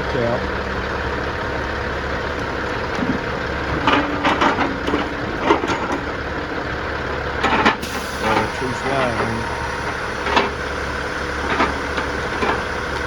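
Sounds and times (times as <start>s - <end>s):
log loader engine running: 0.0s - 13.0s
logs knocking together: 2.2s - 6.2s.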